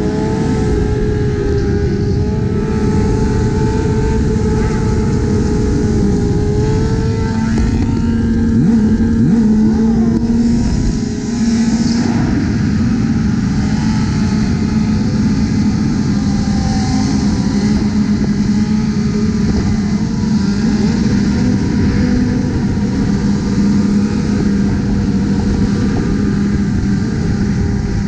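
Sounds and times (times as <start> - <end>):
motorbike engine drone: 0.0 - 28.0
motorbikes revving: 0.0 - 28.0.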